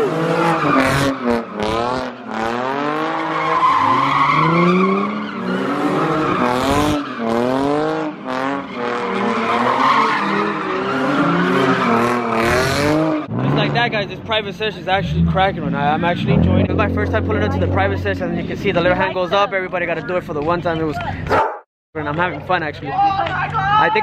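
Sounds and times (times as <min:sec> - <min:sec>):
tyres spinning and squealing: 0:00.0 - 0:17.0
car engine revving hard: 0:00.0 - 0:18.5.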